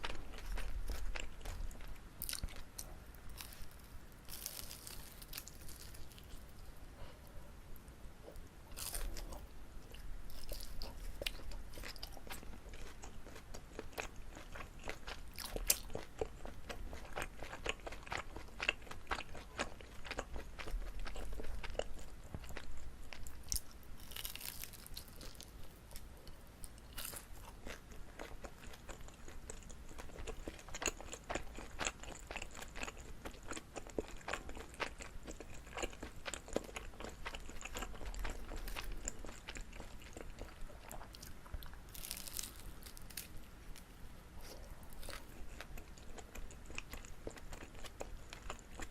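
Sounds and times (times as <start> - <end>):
chewing with mouth clicks: 26.9 - 43.3, 44.4 - 48.9.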